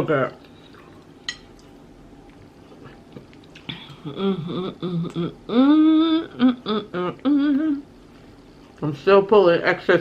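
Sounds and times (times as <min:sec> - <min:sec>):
woman humming while eating: 0:03.6 - 0:08.0.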